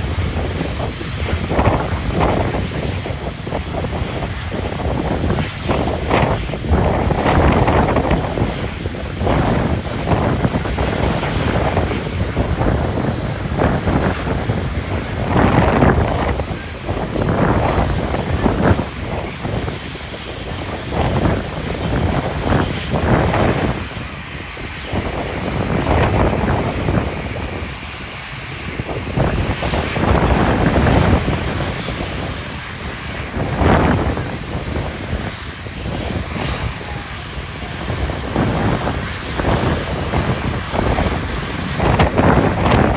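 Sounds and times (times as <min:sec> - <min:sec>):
jet engines whining: 0:00.0 - 0:42.9
wind buffeting microphone: 0:00.0 - 0:42.9.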